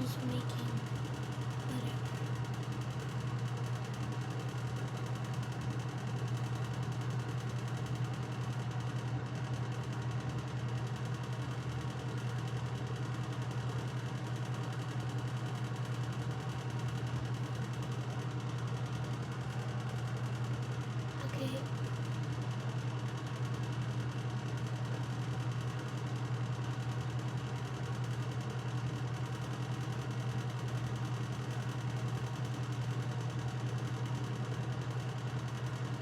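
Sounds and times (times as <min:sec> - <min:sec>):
steady low hum: 0:00.0 - 0:02.3.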